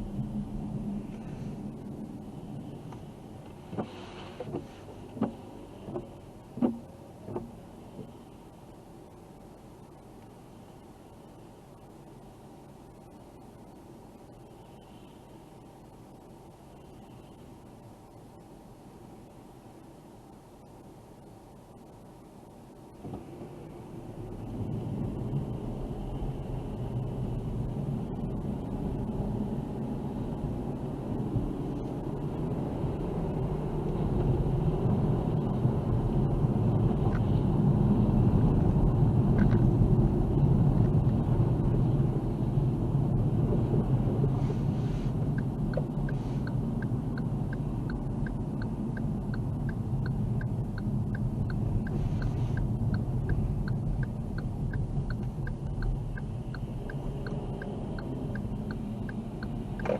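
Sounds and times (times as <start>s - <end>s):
car road and engine rumble: 0.0s - 59.9s
turn signal ticking: 2.9s - 8.2s, 38.4s - 42.4s, 45.1s - 59.9s.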